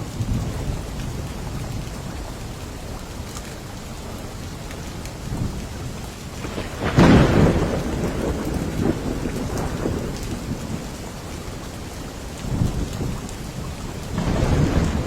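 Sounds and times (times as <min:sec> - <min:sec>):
steady rain: 0:00.0 - 0:15.0
thunder rumbling: 0:05.2 - 0:15.0
loud thunderclap: 0:06.4 - 0:11.2, 0:12.4 - 0:15.0.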